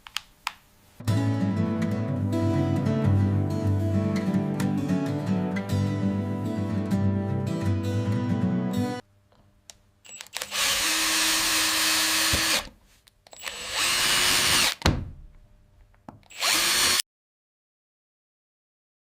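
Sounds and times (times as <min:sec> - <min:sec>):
electric drill running: 0:10.1 - 0:12.7, 0:13.4 - 0:14.8, 0:16.3 - 0:17.0.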